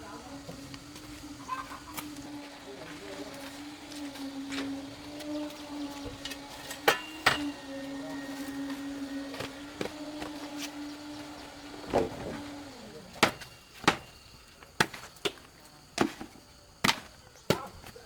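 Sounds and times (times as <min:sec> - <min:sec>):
steady low hum: 0:00.0 - 0:15.7
sharp chopping blows: 0:11.9 - 0:14.2.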